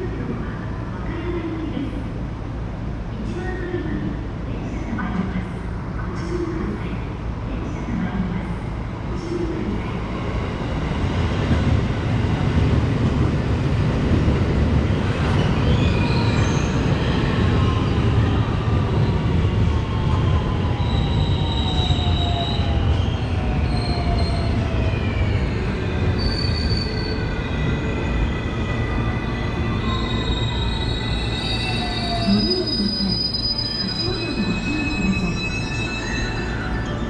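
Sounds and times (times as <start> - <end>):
train wheels rumbling on rails: 9.6 - 30.7.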